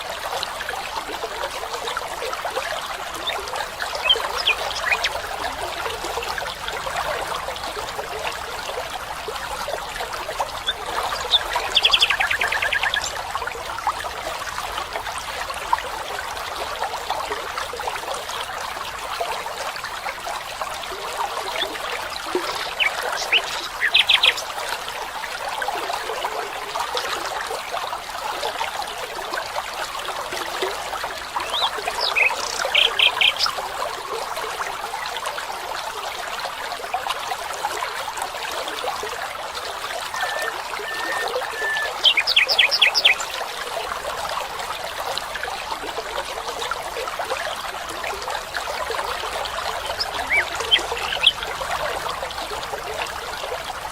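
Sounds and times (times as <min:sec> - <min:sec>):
small stream trickling: 0:00.0 - 0:53.9
bird calling in rapid bursts: 0:40.1 - 0:43.2.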